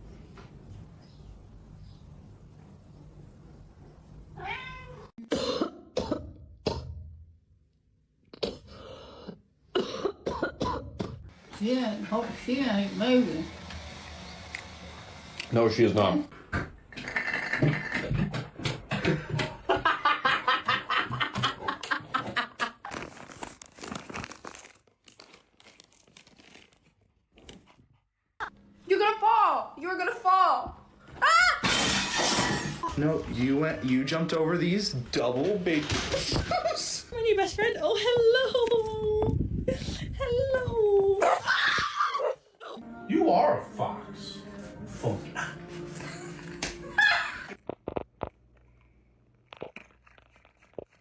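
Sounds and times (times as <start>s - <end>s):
cat meowing: 4.4s - 5.1s
plastic crinkling and rustling: 22.6s - 27.8s.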